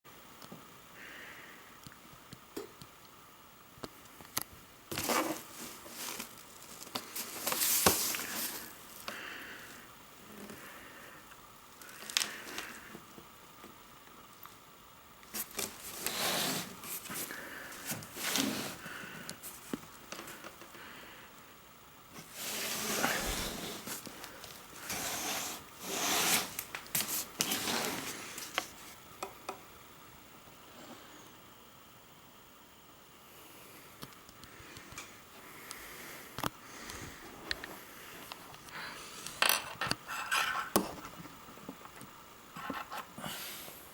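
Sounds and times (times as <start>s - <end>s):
box packaging rubbing and scraping: 4.9s - 6.3s, 15.4s - 18.8s, 22.2s - 24.0s, 24.8s - 28.6s.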